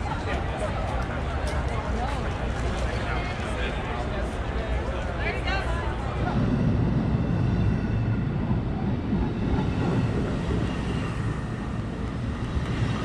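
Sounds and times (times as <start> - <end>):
train wheels rumbling on rails: 0.0 - 13.0
train clatter: 8.5 - 13.0.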